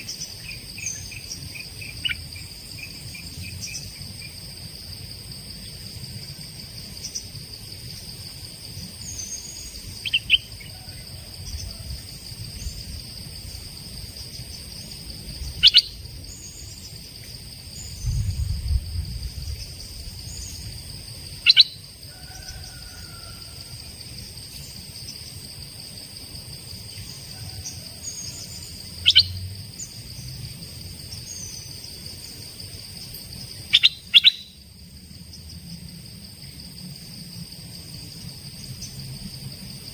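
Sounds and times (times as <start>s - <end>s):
high insect drone: 0.0s - 39.9s
songbird short sharp calls: 21.4s - 21.8s, 29.0s - 29.4s, 33.7s - 34.6s.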